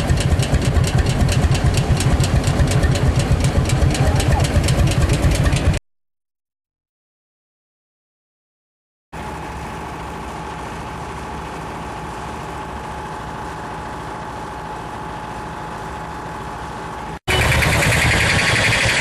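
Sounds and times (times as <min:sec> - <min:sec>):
tractor engine running: 0:00.0 - 0:05.8, 0:09.2 - 0:19.0
louder sound: 0:17.3 - 0:19.0.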